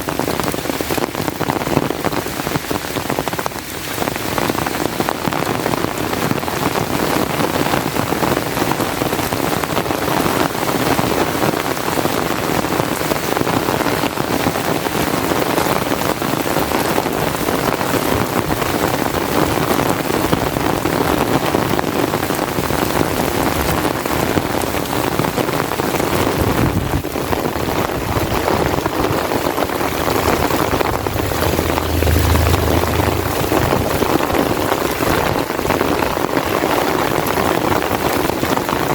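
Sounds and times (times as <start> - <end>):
heavy rain on an umbrella: 0.0 - 38.9
low rumble: 27.9 - 35.7.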